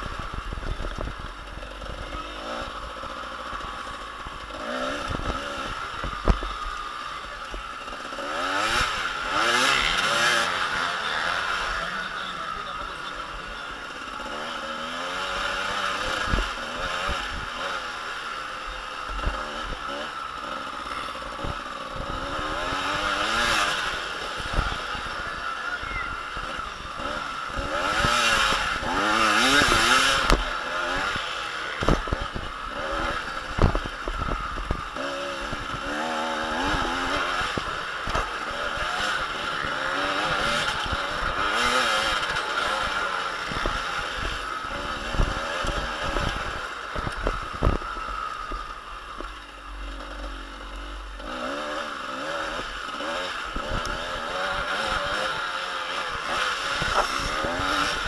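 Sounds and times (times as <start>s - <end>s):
motocross bike engines revving: 0.0s - 58.0s.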